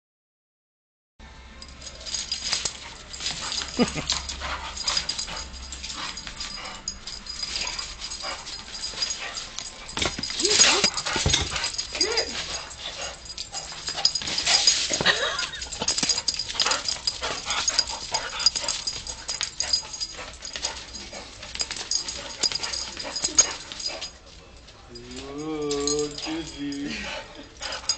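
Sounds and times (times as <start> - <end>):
dog whining and yipping: 2.6 - 21.2.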